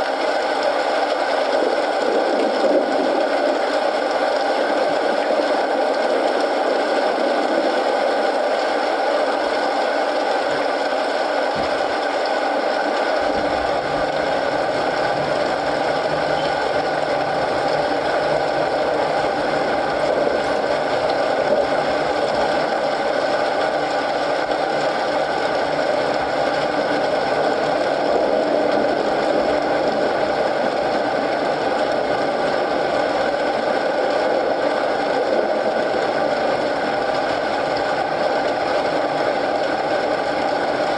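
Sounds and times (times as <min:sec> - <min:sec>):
steady rain: 0:00.0 - 0:40.9
wood fire crackling: 0:11.5 - 0:27.8
low rumble: 0:13.1 - 0:24.2.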